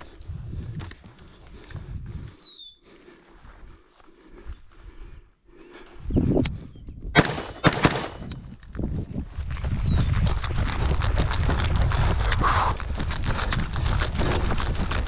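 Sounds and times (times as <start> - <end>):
rifle shots: 7.2 - 8.4.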